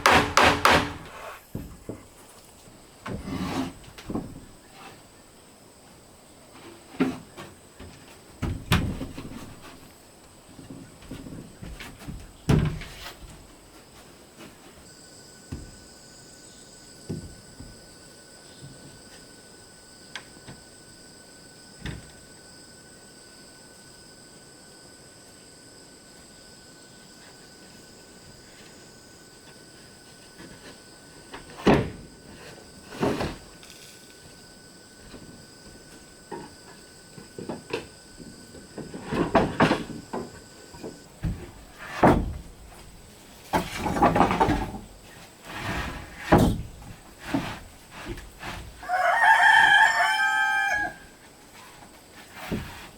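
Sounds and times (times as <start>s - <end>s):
wooden knocks: 0.0s - 2.0s
wood rattling: 0.0s - 2.1s, 38.7s - 45.0s
faint steady hiss: 0.0s - 52.9s.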